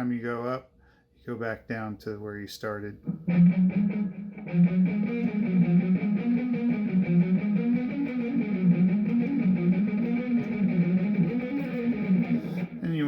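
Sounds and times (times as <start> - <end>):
electric guitar fast picking: 3.2 - 12.8.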